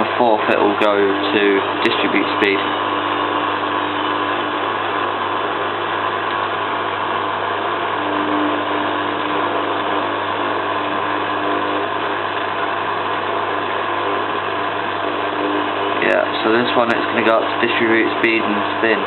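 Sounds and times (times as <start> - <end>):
washing machine motor hum: 0.0 - 19.0.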